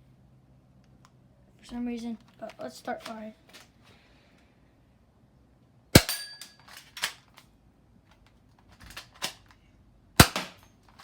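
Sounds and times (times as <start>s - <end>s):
airsoft pistol shots: 6.0s - 6.3s, 10.2s - 10.6s.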